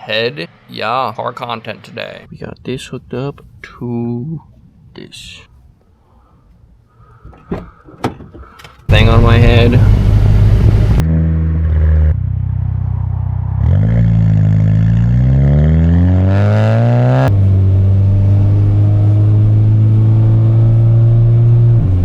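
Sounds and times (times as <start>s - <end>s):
car engine revving through exhaust: 8.9s - 22.0s.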